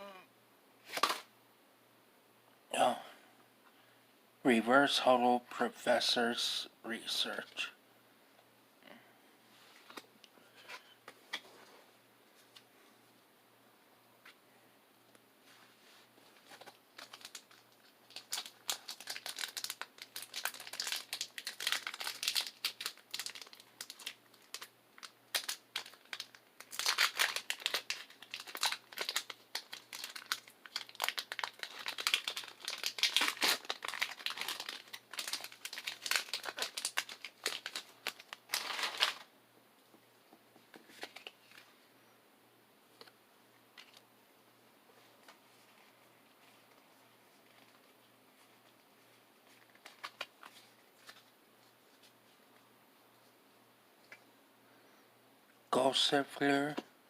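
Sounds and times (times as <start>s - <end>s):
foil wrapper crinkling and tearing: 16.5s - 39.3s, 49.5s - 51.3s.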